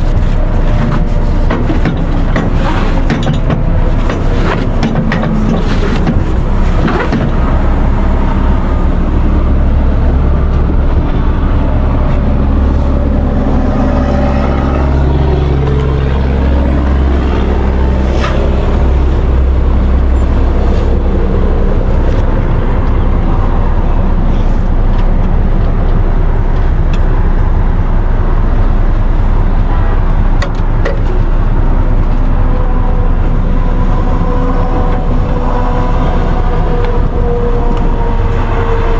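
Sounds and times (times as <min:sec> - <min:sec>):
large vehicle engine humming: 0:00.0 - 0:38.9.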